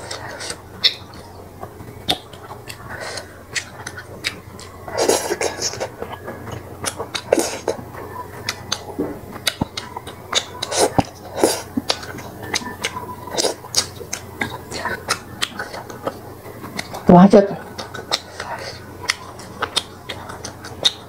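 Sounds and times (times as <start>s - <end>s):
woman chewing food: 0.0s - 21.0s
mouth clicks and lip smacks: 8.4s - 17.1s, 17.8s - 21.0s.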